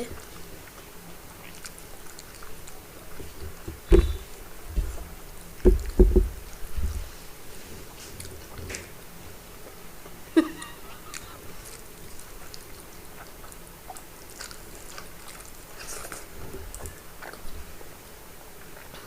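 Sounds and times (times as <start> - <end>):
person chewing wetly: 0.0 - 7.0, 7.6 - 19.0
dull thumps: 3.2 - 7.1.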